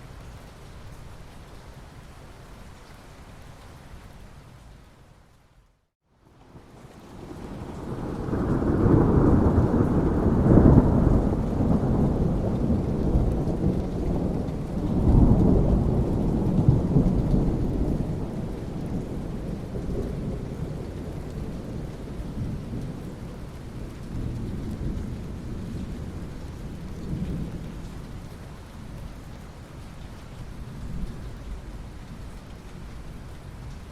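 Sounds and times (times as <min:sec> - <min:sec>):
steady rain: 0:00.0 - 0:33.9
thunder rumbling: 0:07.1 - 0:28.3.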